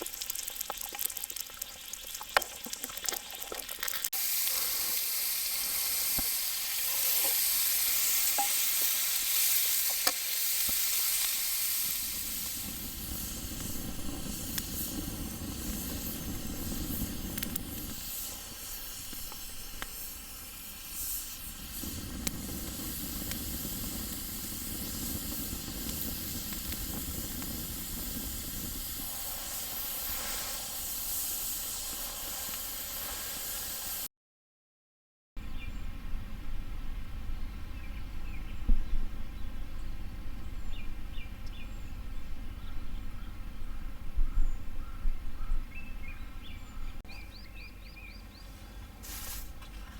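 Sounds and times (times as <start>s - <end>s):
sizzling hiss with crackles: 0.0s - 34.1s, 47.4s - 49.9s.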